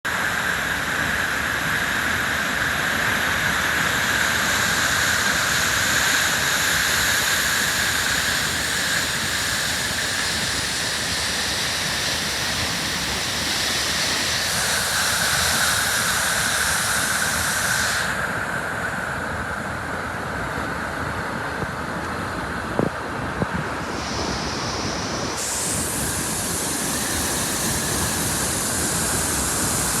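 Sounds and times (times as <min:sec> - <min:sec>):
waterfall rushing: 0:23.8 - 0:30.0.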